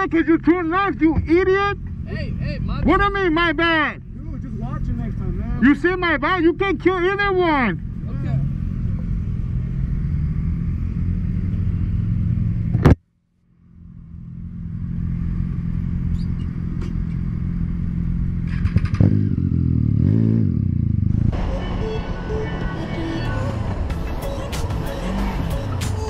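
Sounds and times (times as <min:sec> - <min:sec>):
motorcycle engine and road noise: 0:00.0 - 0:26.0.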